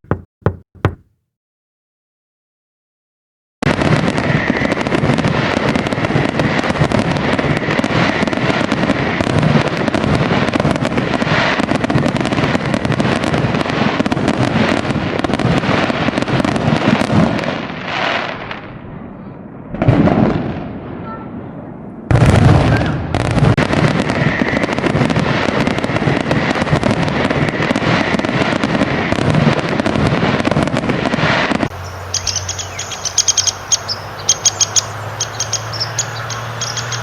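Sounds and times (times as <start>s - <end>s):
fireworks crackling: 23.2s - 35.9s.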